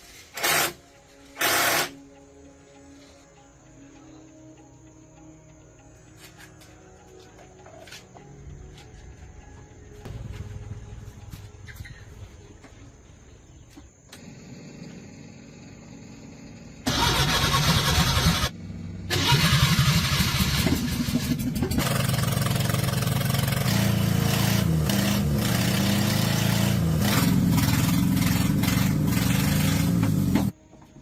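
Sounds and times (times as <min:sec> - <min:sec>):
truck engine starting and running: 0:13.7 - 0:30.6.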